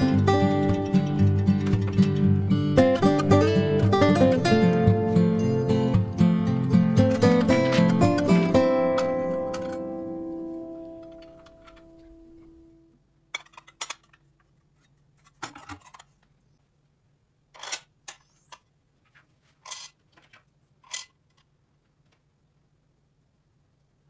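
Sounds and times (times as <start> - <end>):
guitar music: 0.0 - 12.8.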